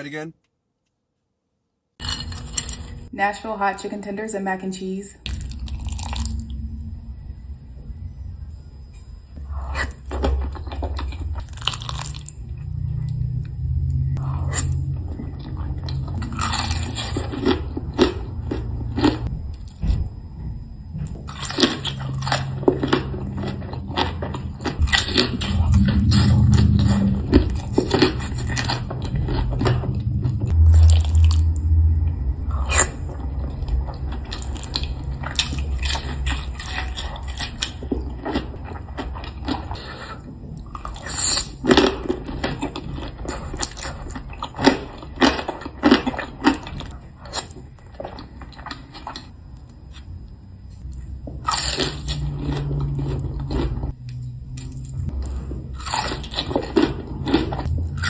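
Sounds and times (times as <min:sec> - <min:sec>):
crisp bites and chewing: 0:02.0 - 0:03.1, 0:05.3 - 0:06.5, 0:09.7 - 0:13.5, 0:21.1 - 0:31.8
low hum: 0:05.1 - 0:58.0.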